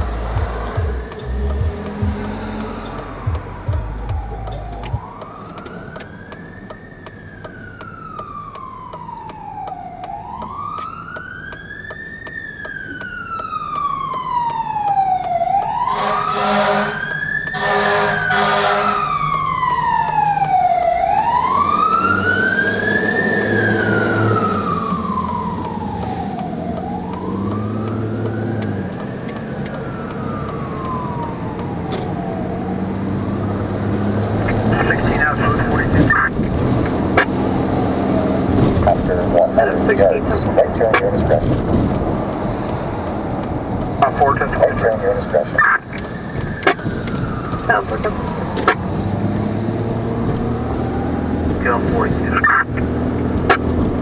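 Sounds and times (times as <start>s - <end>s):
truck engine running: 0.0s - 10.7s, 22.7s - 54.0s
fire engine siren wailing: 0.0s - 54.0s
truck horn blasts: 15.9s - 19.1s.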